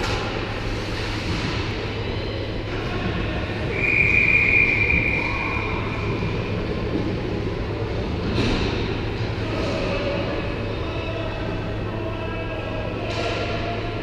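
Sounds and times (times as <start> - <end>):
referee's whistle: 3.7 - 5.9.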